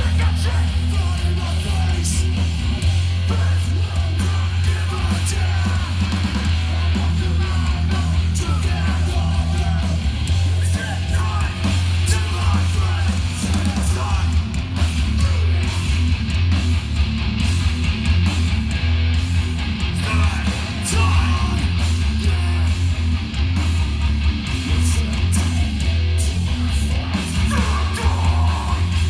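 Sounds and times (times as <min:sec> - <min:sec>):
bass guitar: 0:00.0 - 0:29.0
distorted guitars: 0:00.0 - 0:29.0
drums with crashing cymbals: 0:00.0 - 0:29.0.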